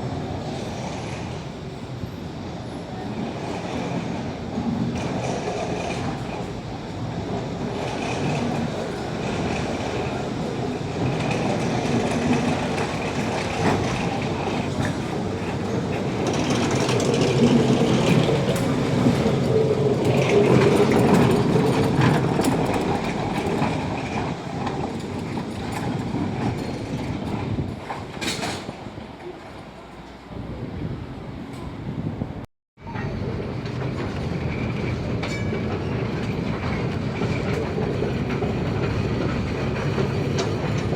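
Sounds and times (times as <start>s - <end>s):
funicular wheels rumbling on rails: 0.0s - 40.9s.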